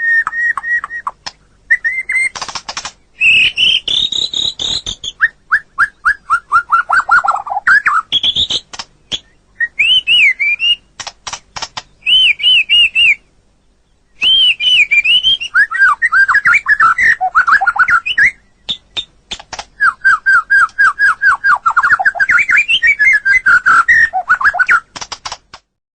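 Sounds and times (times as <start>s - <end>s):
bird singing whistled notes: 0.0s - 2.4s, 3.1s - 10.9s, 11.9s - 24.9s
sharp dry clicks: 2.1s - 3.0s, 8.2s - 9.2s, 10.9s - 11.9s, 18.7s - 19.8s, 24.6s - 25.7s.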